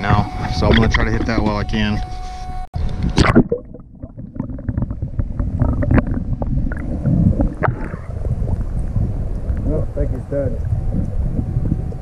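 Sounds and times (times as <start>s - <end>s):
microphone handling noise: 0.0s - 12.0s
low rumbling wind: 2.8s - 12.0s.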